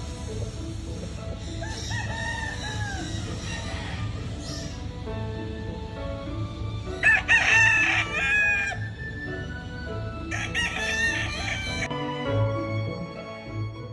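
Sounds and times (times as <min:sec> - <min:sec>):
background music: 0:00.0 - 0:13.9
rooster crowing: 0:01.6 - 0:04.8, 0:07.0 - 0:09.1, 0:10.3 - 0:11.9.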